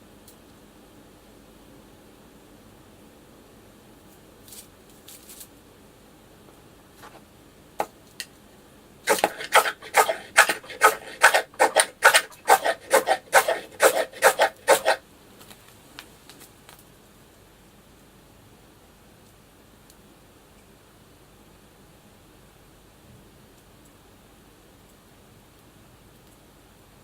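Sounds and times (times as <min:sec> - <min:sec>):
rubbing or scraping strokes: 0:09.1 - 0:15.0.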